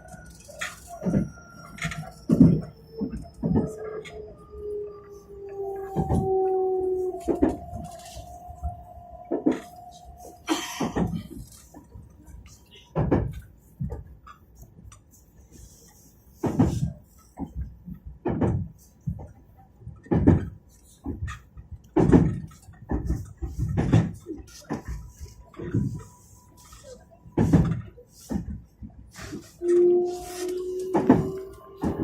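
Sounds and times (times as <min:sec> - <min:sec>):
train running rumble: 0:00.0 - 0:32.0
knocks and clunks: 0:01.0 - 0:04.2, 0:05.8 - 0:06.4, 0:10.5 - 0:11.5, 0:12.9 - 0:14.1, 0:16.4 - 0:29.6, 0:30.7 - 0:32.0.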